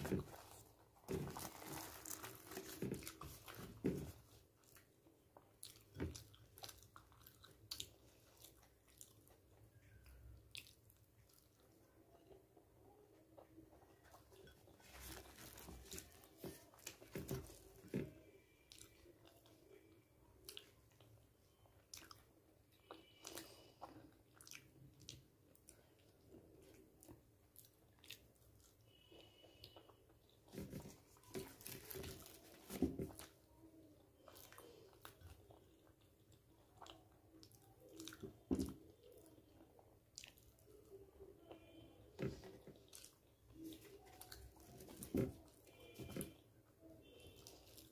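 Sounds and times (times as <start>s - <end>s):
bread tearing and crackling: 0.0s - 3.8s
chewing and crunching bread: 0.0s - 47.9s.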